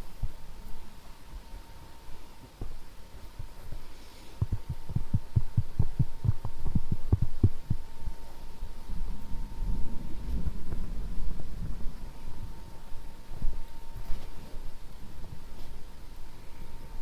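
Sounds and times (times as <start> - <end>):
faint steady hum: 0.0 - 17.0
soft dull tapping thumps: 4.4 - 7.9.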